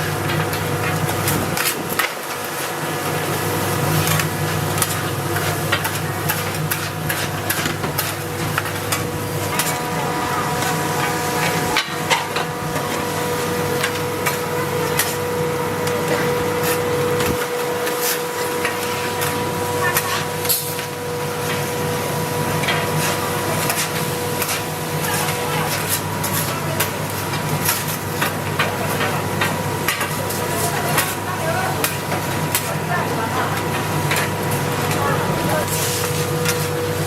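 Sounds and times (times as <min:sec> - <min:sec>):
steady hum: 0:00.0 - 0:37.0
steady whine: 0:07.7 - 0:19.9.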